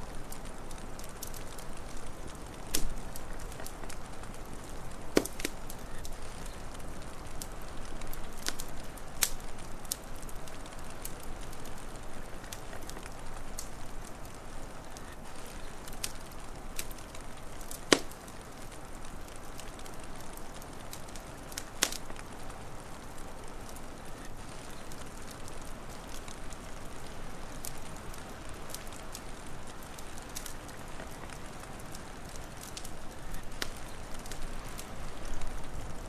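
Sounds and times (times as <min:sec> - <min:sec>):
low hiss: 0:00.0 - 0:36.0
wood fire crackling: 0:00.0 - 0:36.0
sharp pops and snaps: 0:00.2 - 0:14.1, 0:14.9 - 0:18.4, 0:19.2 - 0:22.3, 0:28.6 - 0:35.8.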